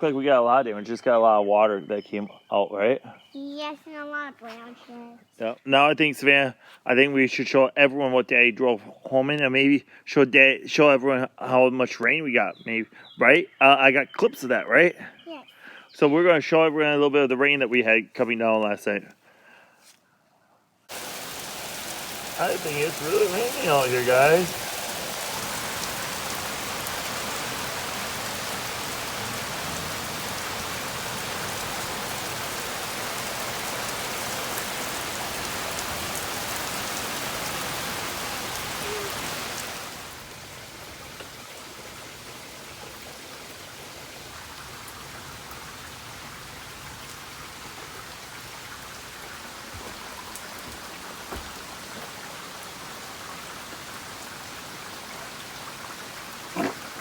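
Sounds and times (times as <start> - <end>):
heavy rain pouring: 20.9 - 57.0.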